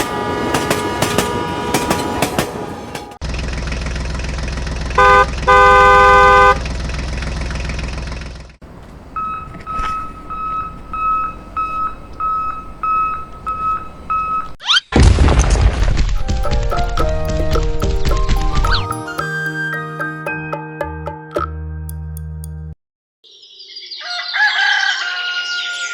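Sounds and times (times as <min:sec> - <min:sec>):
vehicle horn: 0:00.0 - 0:02.9, 0:05.0 - 0:06.7
vehicle engine rumbling: 0:00.0 - 0:14.6.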